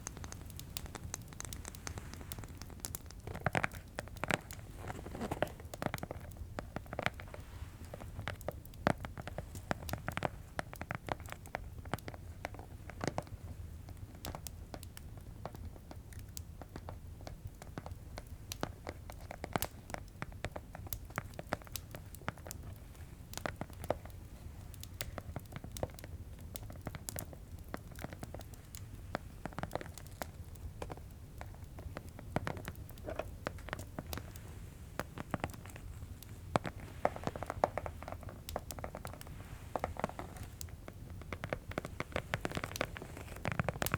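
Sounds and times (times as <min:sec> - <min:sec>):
tapping and clicking on objects: 0:00.0 - 0:03.2
fireplace crackling: 0:00.0 - 0:43.9.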